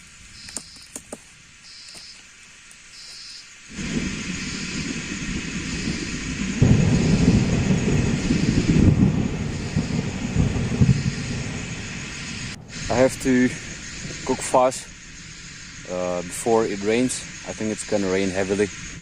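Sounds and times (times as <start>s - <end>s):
rain: 0.0s - 19.0s
wind: 0.0s - 19.0s
faint high chirp: 0.4s - 1.0s, 1.6s - 2.2s, 3.0s - 3.5s
deep rumble: 3.7s - 19.0s.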